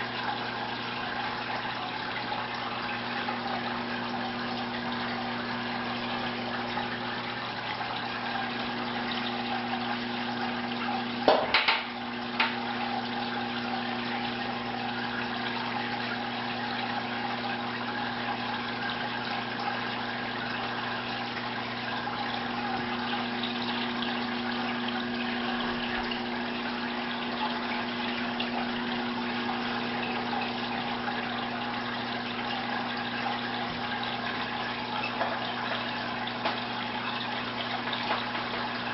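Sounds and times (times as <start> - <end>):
pump motor hum: 0.0 - 38.9
water rushing and trickling: 0.0 - 38.9
sharp knocks: 11.3 - 12.6.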